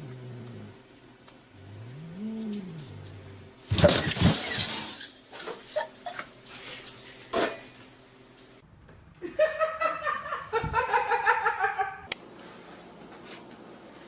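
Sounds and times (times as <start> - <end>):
person laughing: 9.2 - 12.1.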